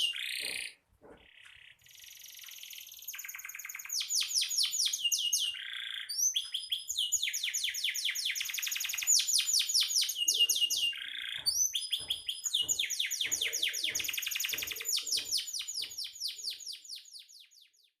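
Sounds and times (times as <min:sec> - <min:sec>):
canary singing trills: 0:00.0 - 0:18.0.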